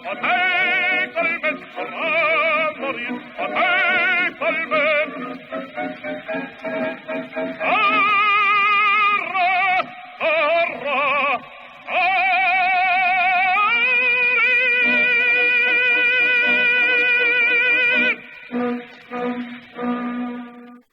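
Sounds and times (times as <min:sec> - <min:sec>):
person singing with vibrato: 0:00.0 - 0:20.9.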